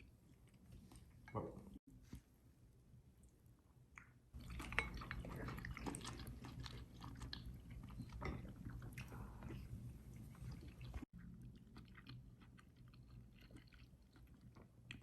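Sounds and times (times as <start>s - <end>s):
person chewing and crunching food: 4.4s - 15.0s.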